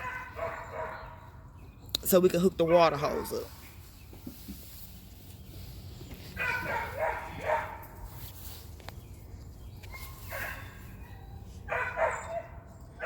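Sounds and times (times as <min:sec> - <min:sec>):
dog barking: 0:00.0 - 0:01.2, 0:06.4 - 0:07.8, 0:09.9 - 0:13.0.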